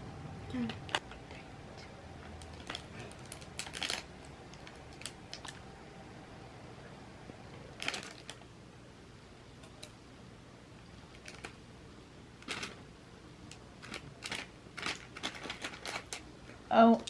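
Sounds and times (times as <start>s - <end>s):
soft chewing clicks and crinkles: 0.6s - 5.6s, 7.6s - 8.5s, 10.8s - 11.6s, 13.4s - 16.6s.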